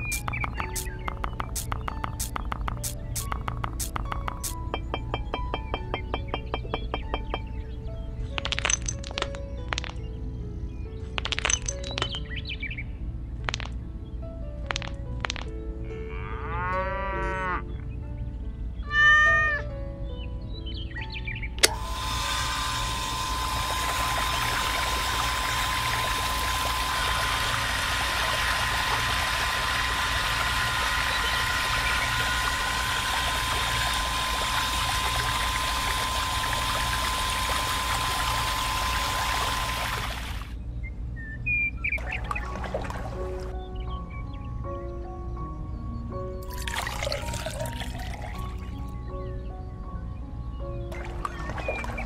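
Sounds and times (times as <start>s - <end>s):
water pouring and splashing: 0.0s - 4.6s, 21.6s - 40.5s, 42.0s - 43.5s, 46.4s - 48.7s, 50.9s - 52.0s
electric water pump humming: 0.0s - 7.6s, 21.6s - 40.6s, 42.0s - 43.6s, 46.4s - 49.0s, 50.9s - 52.0s
animal calls: 18.8s - 19.7s
pump switch click: 21.6s - 30.2s.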